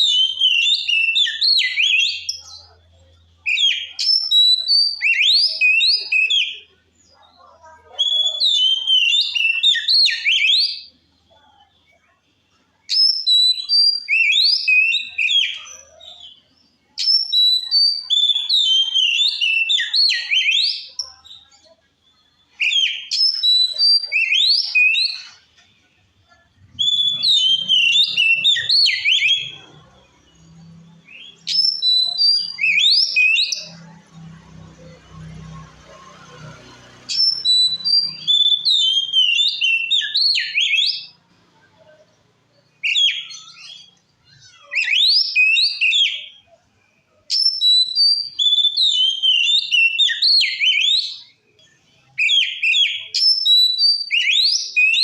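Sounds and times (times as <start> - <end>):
bird singing whistled phrases: 12.9 - 16.4, 17.0 - 25.5, 26.6 - 29.8, 31.1 - 33.8, 37.1 - 41.2, 42.8 - 46.5, 47.3 - 51.4, 52.2 - 55.0.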